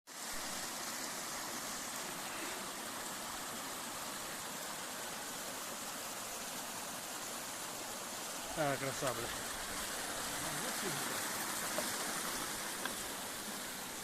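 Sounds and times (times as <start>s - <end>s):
waterfall rushing: 0.1s - 14.0s.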